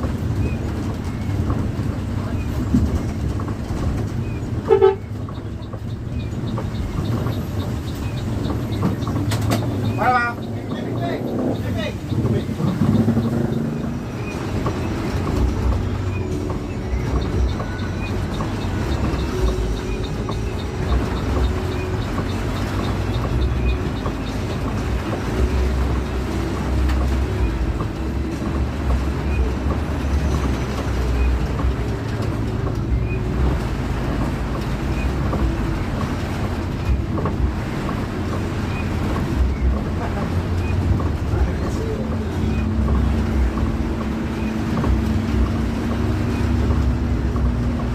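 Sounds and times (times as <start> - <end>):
bus engine and road rumble: 0.0 - 47.9.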